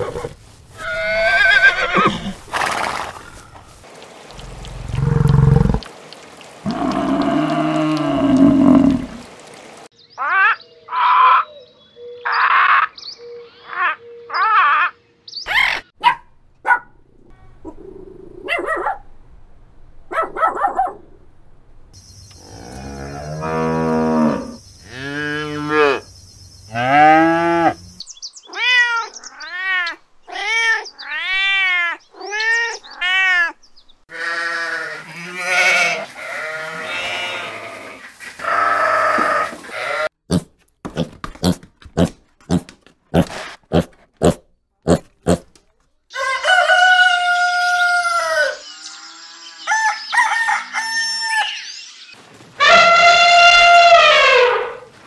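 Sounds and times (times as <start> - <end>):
cattle lowing: 0.0 - 5.9
sheep bleating: 34.1 - 40.1
rooster crowing: 46.1 - 48.6, 49.6 - 51.6.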